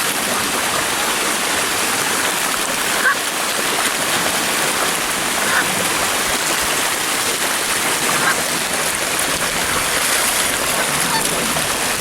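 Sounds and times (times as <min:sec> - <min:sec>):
water rushing over a spillway: 0:00.0 - 0:12.0.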